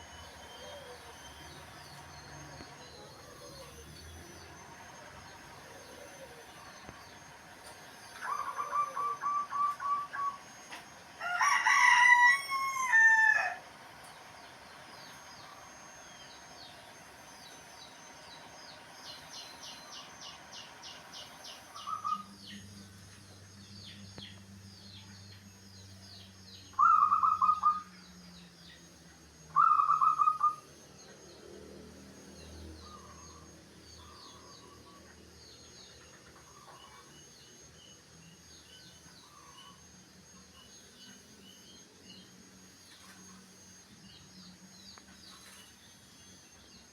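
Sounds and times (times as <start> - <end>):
faint bird chirping: 0.0 - 46.9
short loud bird calls: 8.0 - 13.6, 14.2 - 22.6, 26.7 - 28.1, 29.5 - 30.7
bird repeated notes: 8.1 - 10.8, 26.7 - 27.9, 29.5 - 30.7
rooster crowing: 11.2 - 13.7.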